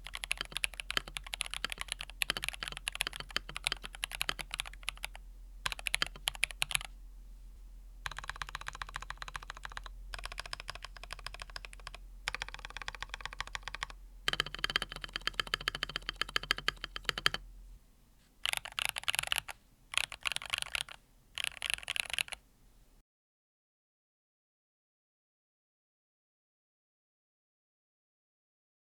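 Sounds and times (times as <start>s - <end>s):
mechanical keyboard typing: 0.0s - 6.9s, 8.1s - 17.4s, 18.4s - 22.4s.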